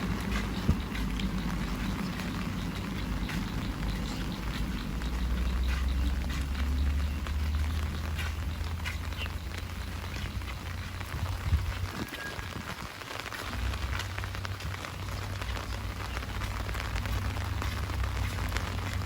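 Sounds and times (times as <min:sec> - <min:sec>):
low rumble: 0:00.0 - 0:11.9
drops ticking close by: 0:00.0 - 0:12.0, 0:13.2 - 0:19.0
heavy rain: 0:00.0 - 0:19.0.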